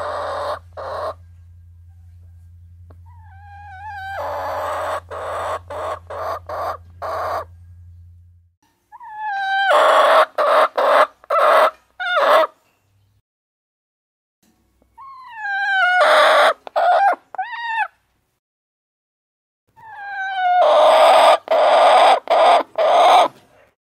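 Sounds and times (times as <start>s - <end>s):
hens squawking: 0.0s - 1.2s, 3.0s - 7.5s, 9.0s - 12.5s, 15.0s - 18.0s, 19.8s - 23.4s
steady low hum: 0.0s - 8.8s.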